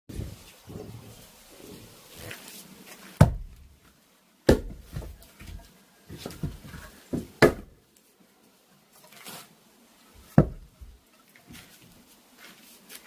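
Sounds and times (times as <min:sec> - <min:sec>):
axe chopping firewood: 0:03.2 - 0:03.6, 0:04.5 - 0:05.2, 0:07.1 - 0:07.8, 0:10.3 - 0:10.7
light knocks of wood: 0:10.3 - 0:10.9.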